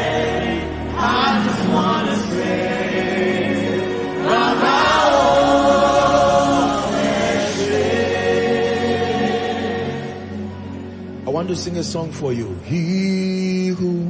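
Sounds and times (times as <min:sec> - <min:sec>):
choir singing gospel music: 0:00.0 - 0:11.6.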